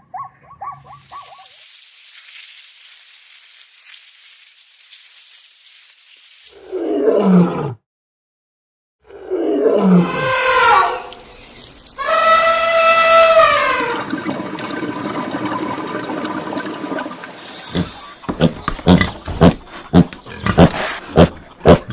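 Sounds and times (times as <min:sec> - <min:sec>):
animal calls sliding down in pitch: 0:12.0 - 0:14.1.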